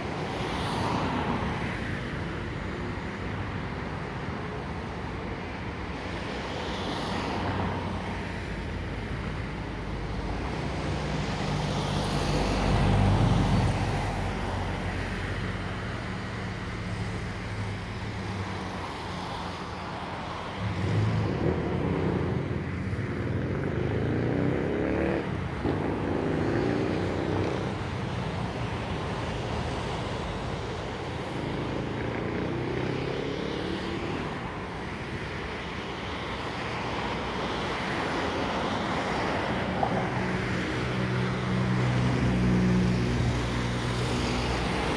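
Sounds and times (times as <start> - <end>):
cars passing: 0.0 - 44.9
vehicle engines running: 15.7 - 35.0.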